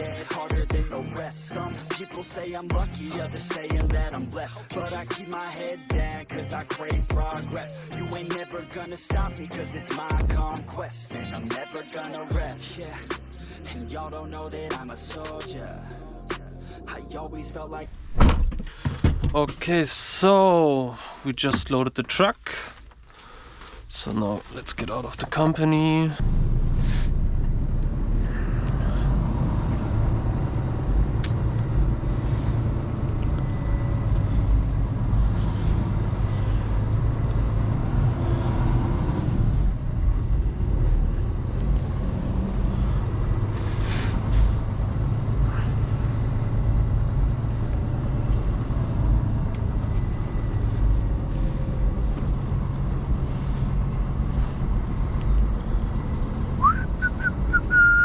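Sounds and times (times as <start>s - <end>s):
road rumble: 0.0s - 58.0s
heavy truck engine: 24.2s - 58.0s.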